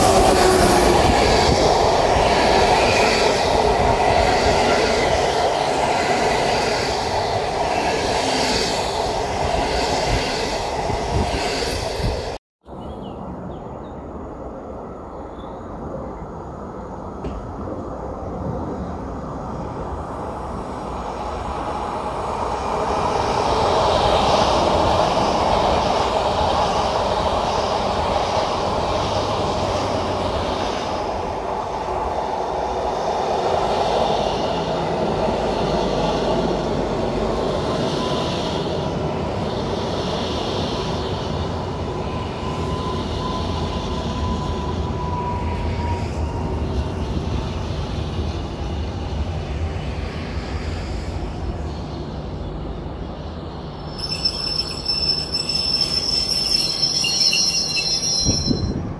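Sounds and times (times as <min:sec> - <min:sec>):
train wheels rumbling on rails: 0:00.0 - 0:12.4, 0:15.6 - 0:58.9
rhythmic train clatter: 0:20.3 - 0:58.9
thin whine: 0:53.8 - 0:58.9.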